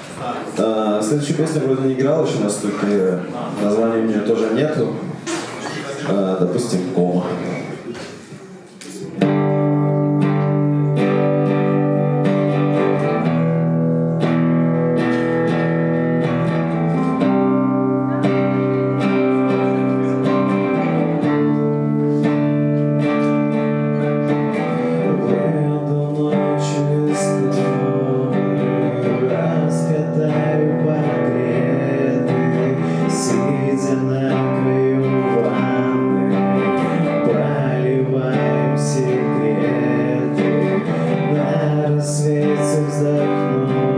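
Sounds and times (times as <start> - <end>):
acoustic guitar strumming: 9.0 - 43.9.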